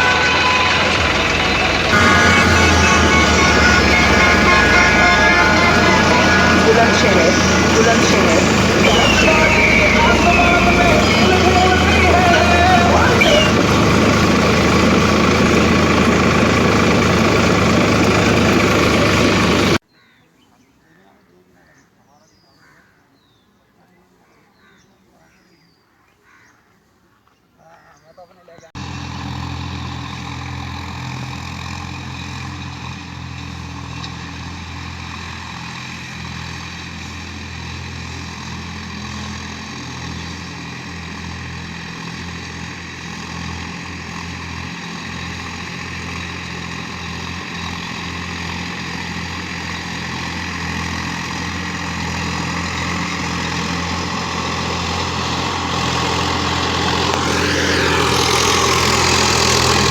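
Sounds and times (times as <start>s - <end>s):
tractor diesel engine running: 0.0s - 19.8s, 28.8s - 59.9s.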